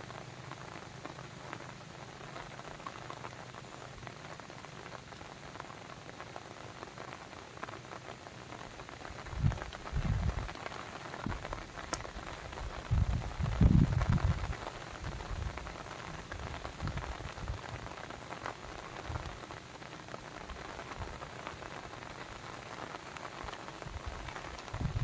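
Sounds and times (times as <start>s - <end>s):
steady rain pattering: 0.0s - 25.0s.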